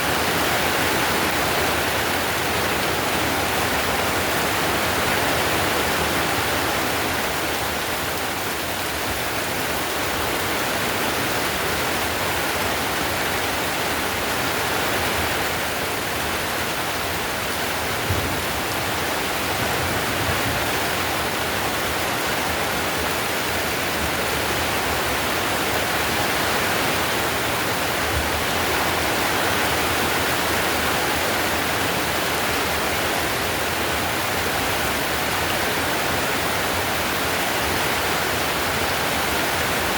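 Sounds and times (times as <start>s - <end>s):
heavy rain on tiled roof: 0.0s - 39.9s
faint low thump: 18.0s - 18.6s.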